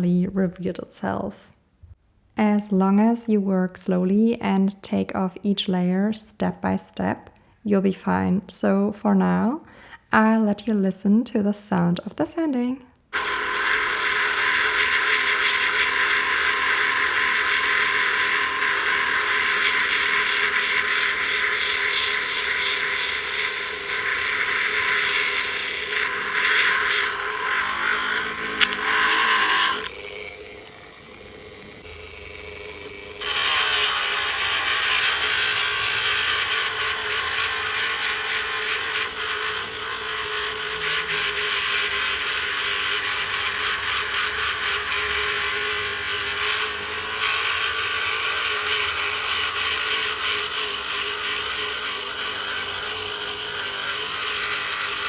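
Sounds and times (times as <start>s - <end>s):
rotary tool sanding shell: 13.1s - 55.0s.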